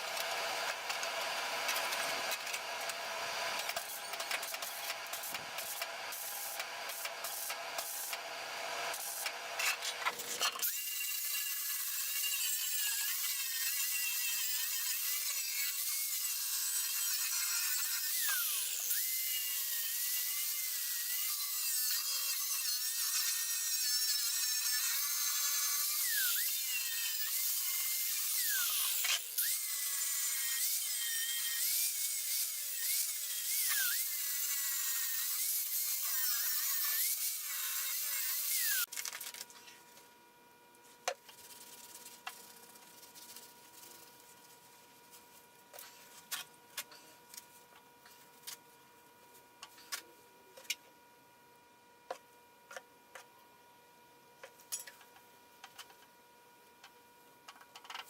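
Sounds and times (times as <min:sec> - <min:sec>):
angle grinder grinding steel: 0:08.9 - 0:38.9.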